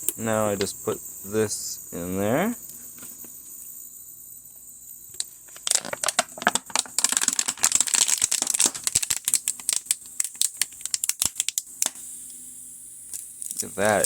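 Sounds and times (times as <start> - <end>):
plastic bottle crackling: 5.5 - 12.0.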